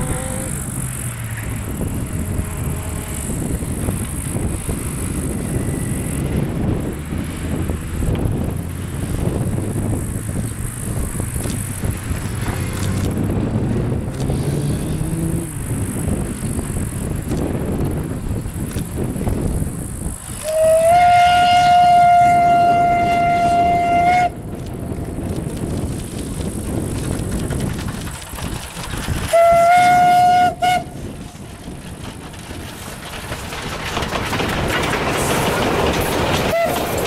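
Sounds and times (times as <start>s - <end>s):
steam train running: 0.0s - 37.0s
steam locomotive whistle: 2.1s - 3.4s, 20.4s - 24.4s, 29.3s - 31.0s, 36.5s - 37.0s.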